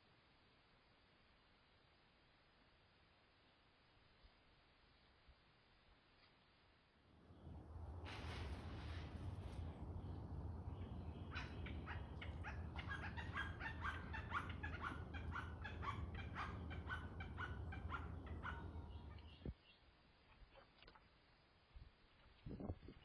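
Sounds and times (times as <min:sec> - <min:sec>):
low hum: 0:07.1 - 0:19.5.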